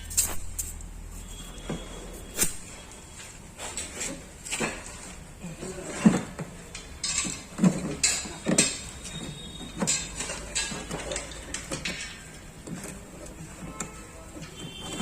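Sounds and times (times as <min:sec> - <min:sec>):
hand tools knocking on metal panels: 0:06.1 - 0:12.9.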